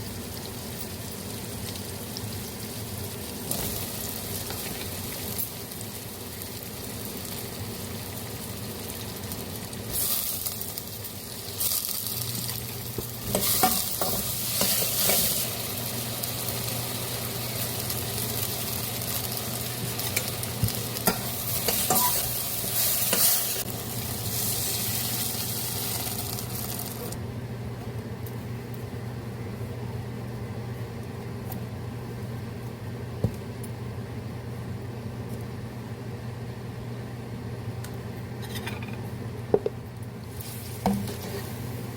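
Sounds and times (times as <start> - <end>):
food sizzling in a pan: 0.0 - 27.2, 40.3 - 41.9
spatula scraping a pan: 21.1 - 23.6.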